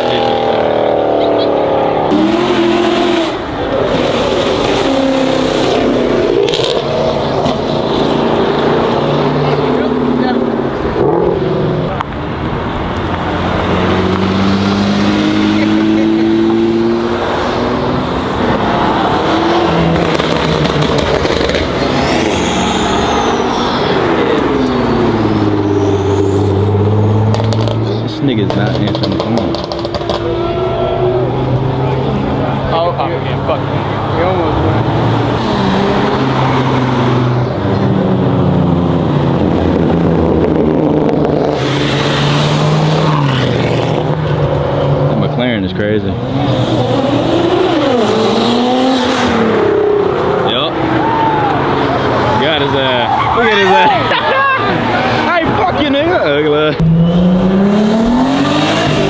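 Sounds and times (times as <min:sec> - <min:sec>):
car engines revving: 0:00.0 - 0:59.0
loud rushing noise: 0:01.8 - 0:32.8
high whine: 0:18.3 - 0:27.4.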